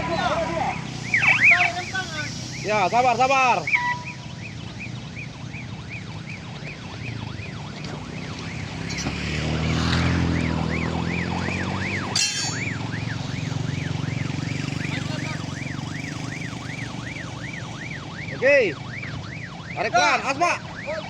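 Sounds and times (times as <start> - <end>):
electronic warbling warning tone: 0.0 - 19.0.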